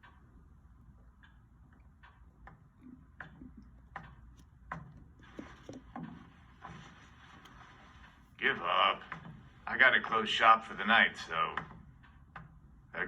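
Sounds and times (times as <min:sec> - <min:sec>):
clock ticking softly: 0:00.0 - 0:06.2
faint low hum: 0:00.0 - 0:13.0.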